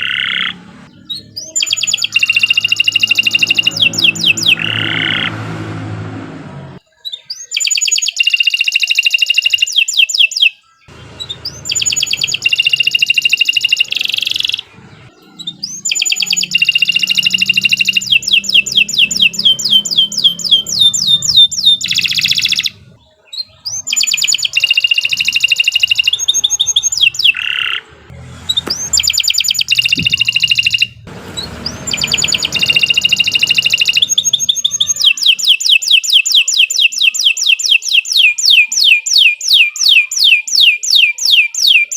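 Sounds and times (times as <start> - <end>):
canary singing trills: 0.0 - 41.9.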